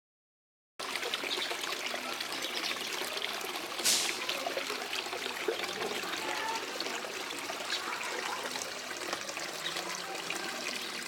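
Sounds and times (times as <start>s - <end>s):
water trickling and splashing: 0.8s - 11.0s
brief louder hiss: 3.8s - 4.2s.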